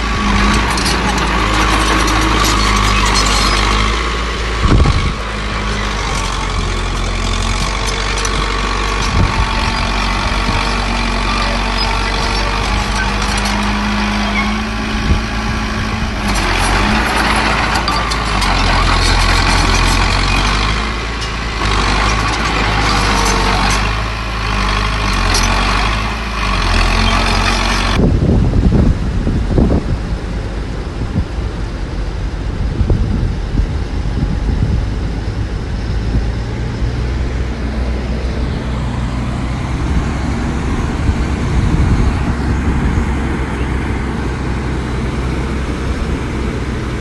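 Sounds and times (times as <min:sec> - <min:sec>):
heavy diesel engines running: 0:00.0 - 0:47.0.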